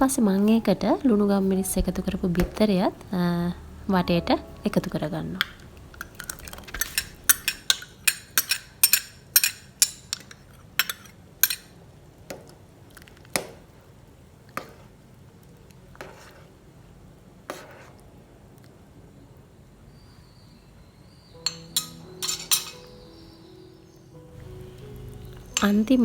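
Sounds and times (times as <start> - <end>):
metal spoon clinking on pot: 5.4 - 11.7, 21.4 - 23.0, 25.2 - 26.0.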